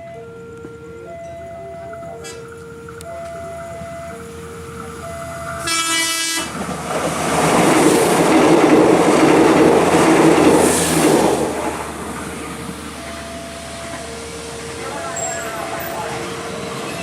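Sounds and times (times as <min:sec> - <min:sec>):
two-tone warning signal: 0:00.0 - 0:06.6, 0:12.2 - 0:17.0
train wheels rumbling on rails: 0:00.0 - 0:17.0
train horn blast: 0:05.2 - 0:06.6.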